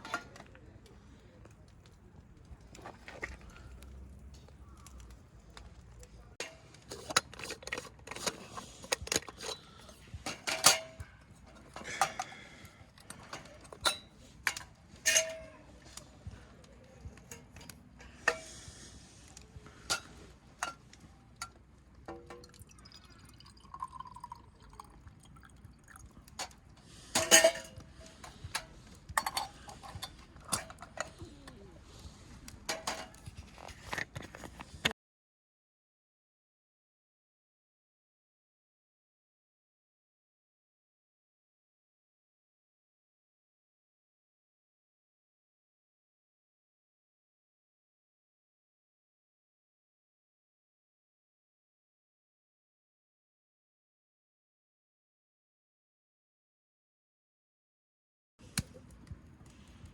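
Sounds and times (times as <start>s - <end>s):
liquid being poured: 22.4s - 26.2s.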